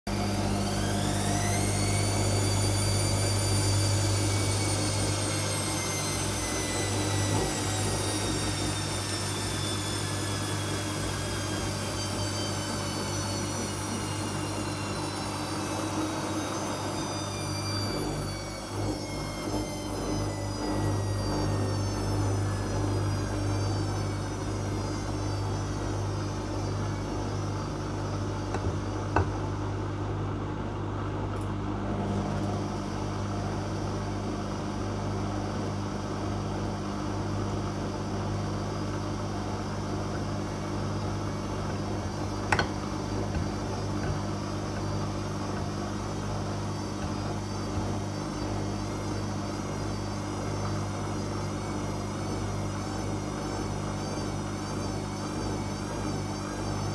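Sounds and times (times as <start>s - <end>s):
washing machine motor hum: 0.0s - 56.9s.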